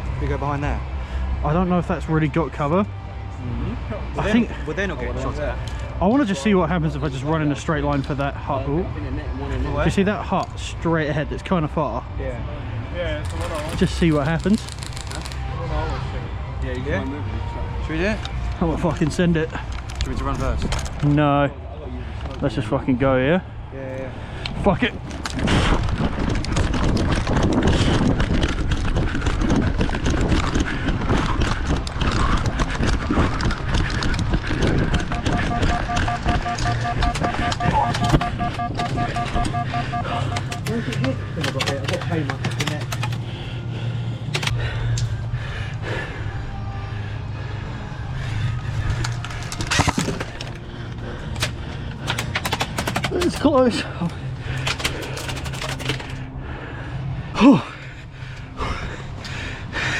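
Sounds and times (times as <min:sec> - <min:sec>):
steady low rumble: 0:21.9 - 0:52.2
running footsteps: 0:25.0 - 0:43.5.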